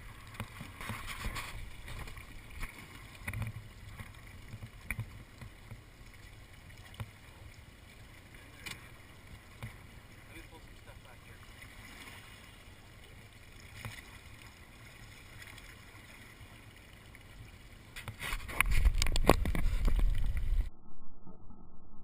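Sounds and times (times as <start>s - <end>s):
boat low rumble: 0.0s - 21.8s
small knocks and clicks: 0.4s - 5.8s
wind noise: 18.1s - 22.0s.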